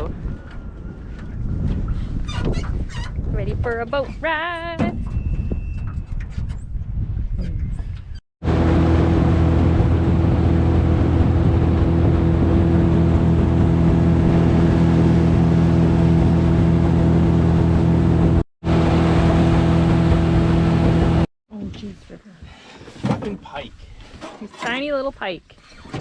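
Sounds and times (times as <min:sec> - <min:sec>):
outboard motor running: 0:08.4 - 0:21.3.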